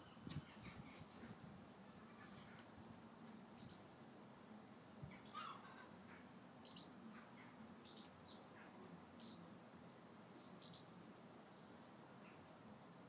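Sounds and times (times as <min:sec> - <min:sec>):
thin lower bird calls: 0:03.5 - 0:03.9, 0:05.1 - 0:09.5, 0:10.3 - 0:11.0
small bird high chirps: 0:03.6 - 0:03.9, 0:05.1 - 0:05.8, 0:06.6 - 0:07.0, 0:07.8 - 0:08.5, 0:09.2 - 0:09.5, 0:10.3 - 0:10.9.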